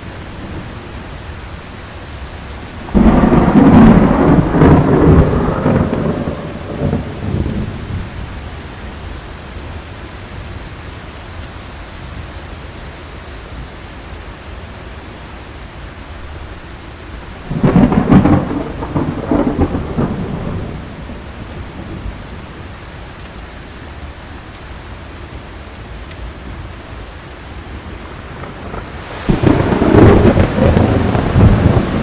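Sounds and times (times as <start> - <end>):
heavy rain: 0.0 - 32.0
thunder crack and rumble: 2.2 - 9.1, 17.3 - 23.1, 27.6 - 32.0.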